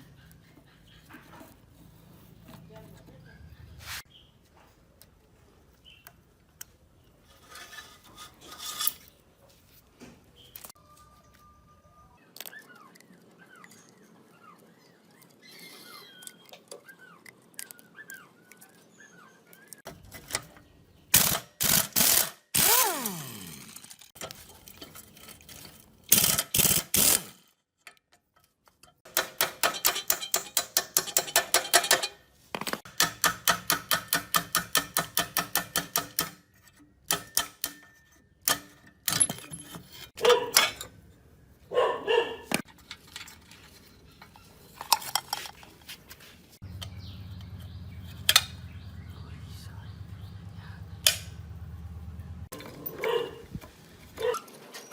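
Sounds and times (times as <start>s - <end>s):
metal clinks and knocks: 28.0s - 41.0s.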